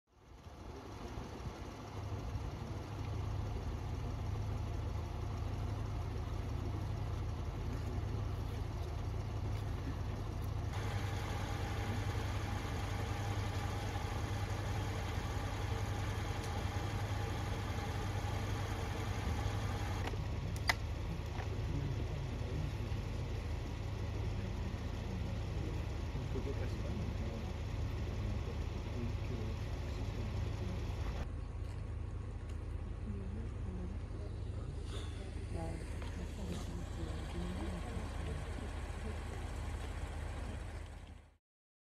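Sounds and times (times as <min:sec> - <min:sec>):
mid-pitched hum: 0:00.2 - 0:41.4
vehicle engines idling: 0:00.2 - 0:41.4.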